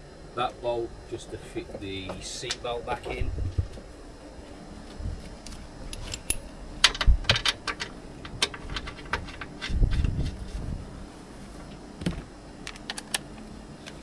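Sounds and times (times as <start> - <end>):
metal parts clinking: 2.4 - 3.2.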